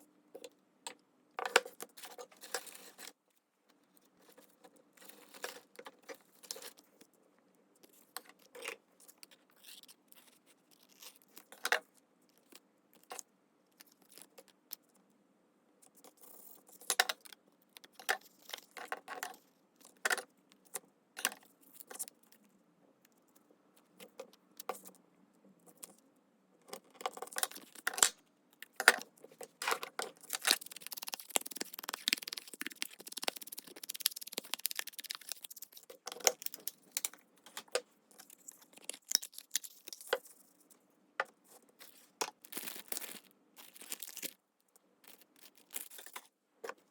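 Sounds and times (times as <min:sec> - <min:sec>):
paper rustling: 0:30.2 - 0:35.9.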